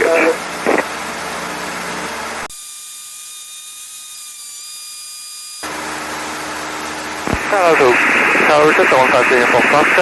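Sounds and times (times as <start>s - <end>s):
high-pitched whine over hiss: 0.0s - 1.0s, 5.6s - 10.0s
aircraft engine rumble: 0.0s - 2.5s, 5.7s - 10.0s.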